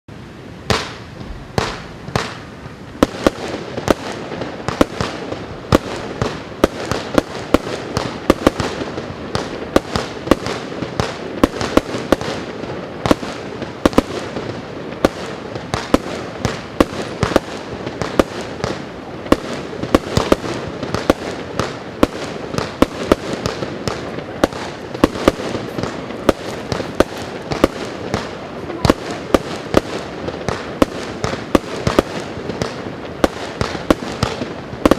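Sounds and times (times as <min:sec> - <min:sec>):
firework launch cracks: 0:00.6 - 0:34.9
crackle of bursting shells: 0:15.0 - 0:34.9.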